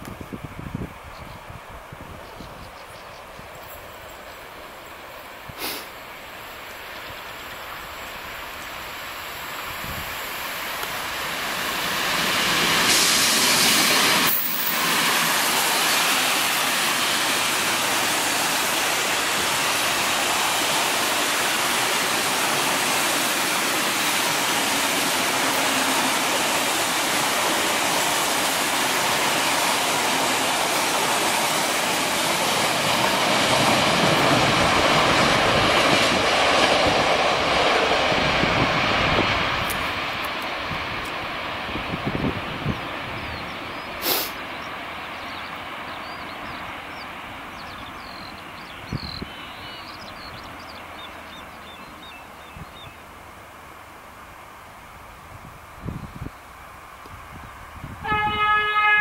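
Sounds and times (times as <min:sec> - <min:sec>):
locomotive rushing past: 0:06.2 - 0:52.4.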